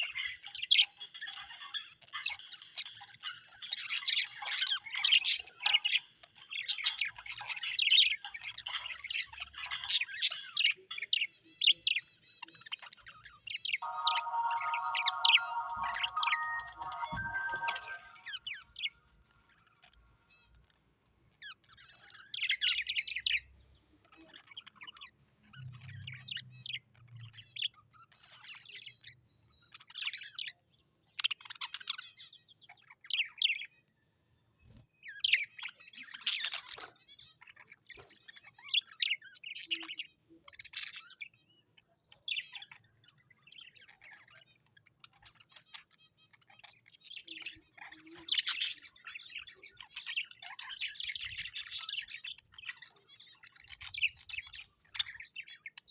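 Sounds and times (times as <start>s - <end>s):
birds chirping and squawking: 42.6s - 55.9s.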